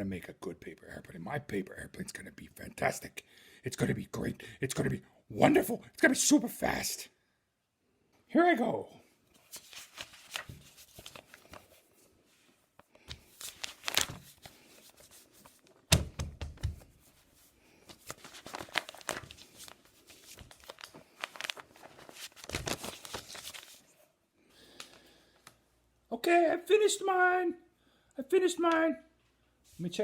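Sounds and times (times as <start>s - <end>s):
paper rustling and crinkling: 9.3s - 24.1s.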